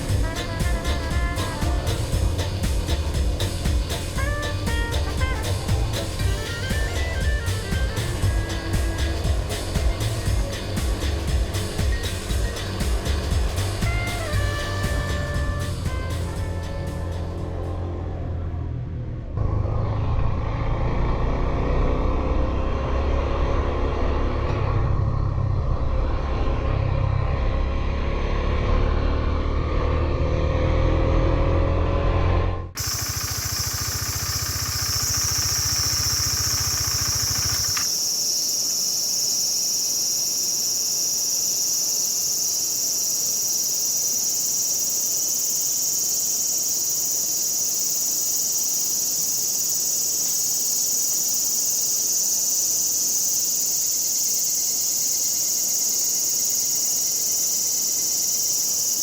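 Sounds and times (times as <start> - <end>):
insects chorus: 0.0 - 17.6, 32.8 - 59.0
motorcycle engine idling: 0.0 - 18.3, 32.8 - 38.2
motorcycle engine revving: 0.0 - 38.1.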